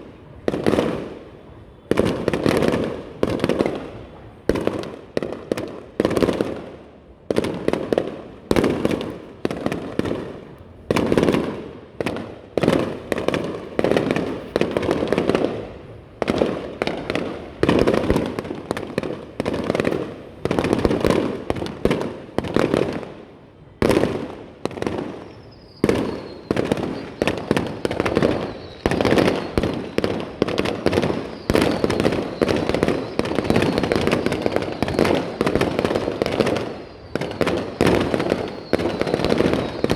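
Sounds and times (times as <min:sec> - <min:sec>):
fireworks bangs: 0:00.0 - 0:39.9
fireworks crackling: 0:00.0 - 0:39.9
falling whistle: 0:25.2 - 0:30.0, 0:31.0 - 0:36.0, 0:36.6 - 0:39.9.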